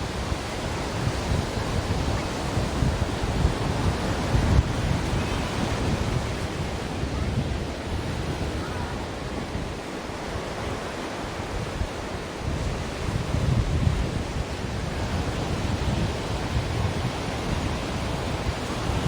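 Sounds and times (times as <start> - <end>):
ocean waves breaking: 0.0 - 19.0.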